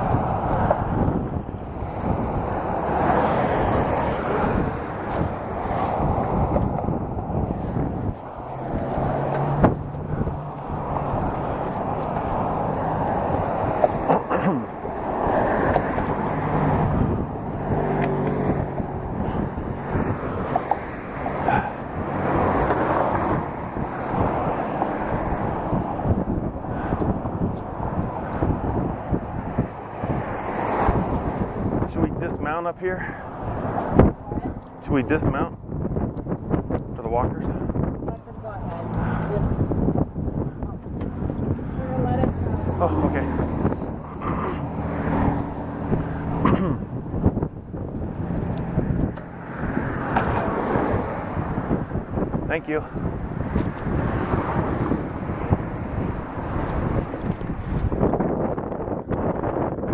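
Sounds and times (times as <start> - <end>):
wind on microphone: 0.0 - 59.9
vehicle engine running: 33.1 - 50.5
bicycle rolling over path: 35.6 - 37.0, 56.5 - 58.5.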